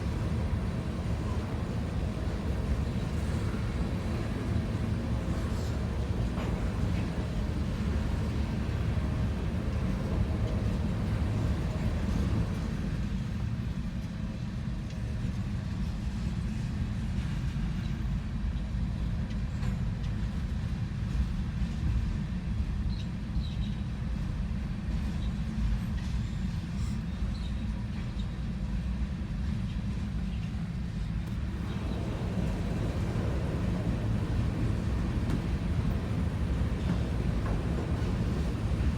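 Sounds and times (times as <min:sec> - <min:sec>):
steel wheels rumbling on rail: 0:00.0 - 0:22.7, 0:30.0 - 0:38.9.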